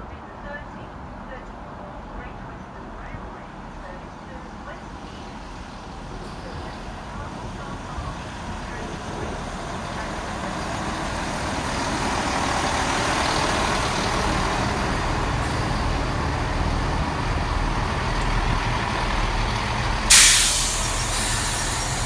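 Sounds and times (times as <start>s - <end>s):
diesel train engines running: 0.0s - 22.0s
compressed air hiss: 20.1s - 22.0s.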